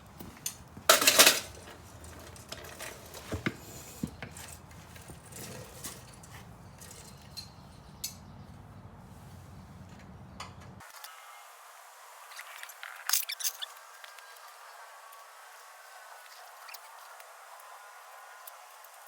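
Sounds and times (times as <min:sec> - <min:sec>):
metal tools clanking: 0:00.2 - 0:08.3.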